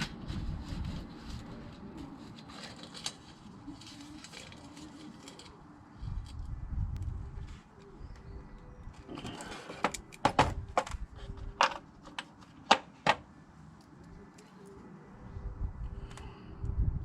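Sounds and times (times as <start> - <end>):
clicks and knocks of parts: 9.0 - 11.0.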